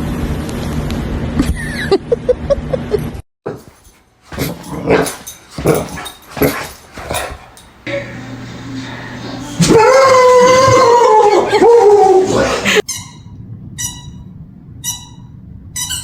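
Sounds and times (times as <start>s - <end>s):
dog yipping and whining: 9.6s - 14.2s, 14.8s - 16.0s.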